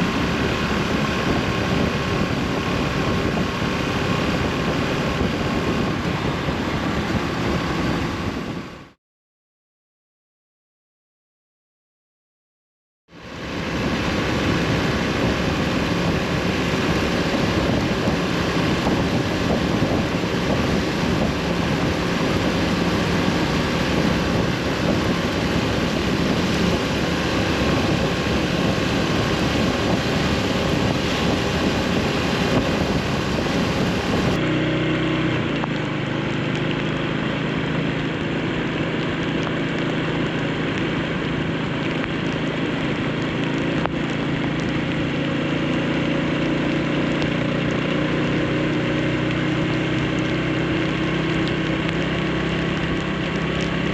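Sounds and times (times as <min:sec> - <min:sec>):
motorcycle engine running: 0:00.0 - 0:09.0, 0:13.1 - 0:53.9
wind noise on microphone: 0:00.0 - 0:09.0, 0:13.3 - 0:34.6.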